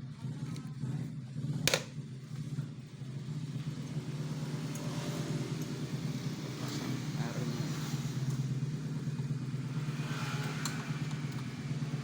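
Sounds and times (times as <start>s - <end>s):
sharp click of part fitting: 1.7s - 1.9s
road traffic passing: 3.1s - 12.0s.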